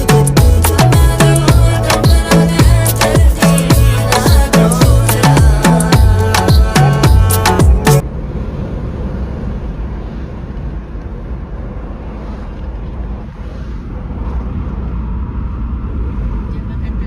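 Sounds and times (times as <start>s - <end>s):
music: 0.0s - 8.0s
moving vehicle rumble: 0.0s - 17.0s.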